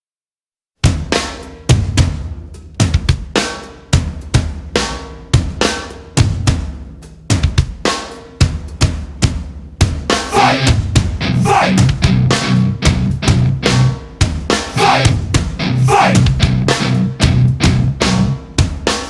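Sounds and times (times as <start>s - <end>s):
drum kit beat: 0.8s - 19.0s
rock music: 10.3s - 19.0s.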